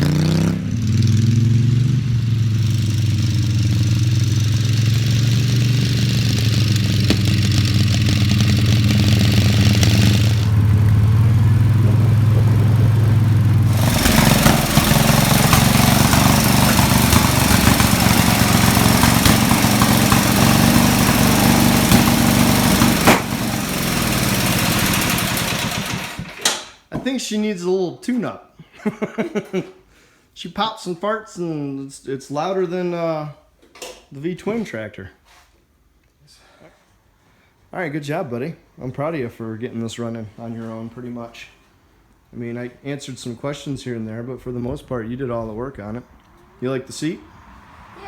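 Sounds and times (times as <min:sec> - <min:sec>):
small tractor engine popping: 0:00.0 - 0:26.7.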